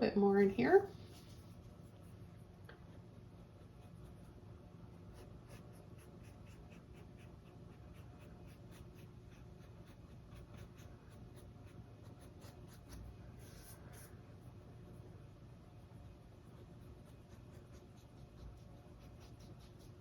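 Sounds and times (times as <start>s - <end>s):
paintbrush strokes on canvas: 0.7s - 2.4s, 5.1s - 14.6s, 15.8s - 20.0s.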